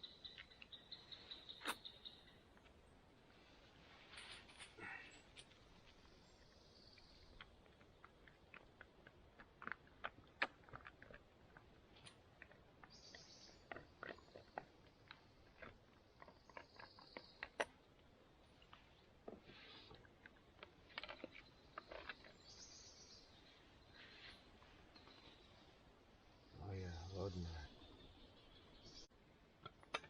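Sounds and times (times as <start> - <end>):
dog crunching food: 7.7 - 11.7, 13.7 - 17.7.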